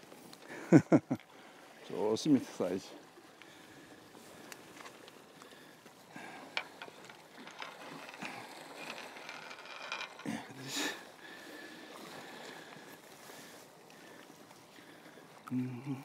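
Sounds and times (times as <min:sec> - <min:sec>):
fishing tackle clicking: 0:06.6 - 0:10.3.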